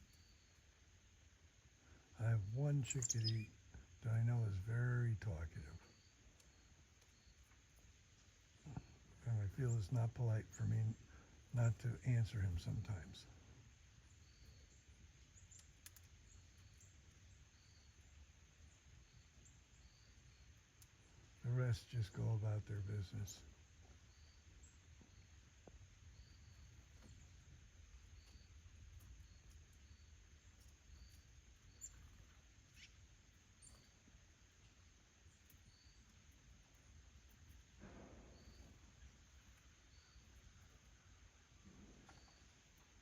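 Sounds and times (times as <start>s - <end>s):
faint low hum: 0.0s - 43.0s
small birds chirping: 0.0s - 43.0s
faint high chirps: 1.8s - 4.8s
soft clicks: 15.5s - 16.2s.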